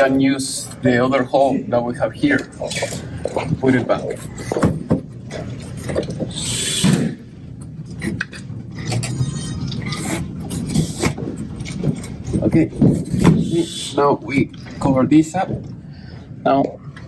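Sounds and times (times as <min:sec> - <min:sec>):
handling knocks and clicks: 0:02.3 - 0:06.3, 0:10.7 - 0:13.4.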